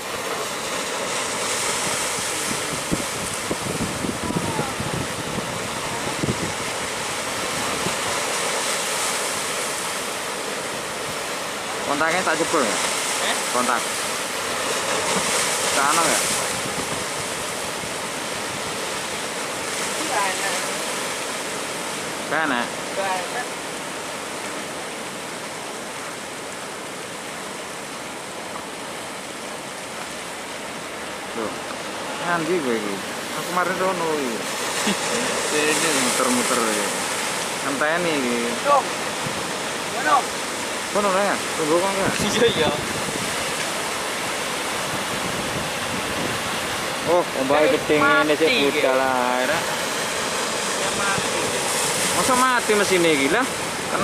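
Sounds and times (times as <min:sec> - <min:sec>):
heavy surf rushing: 0:00.0 - 0:54.0
wind buffeting microphone: 0:01.7 - 0:08.6, 0:16.2 - 0:19.0, 0:41.9 - 0:47.1.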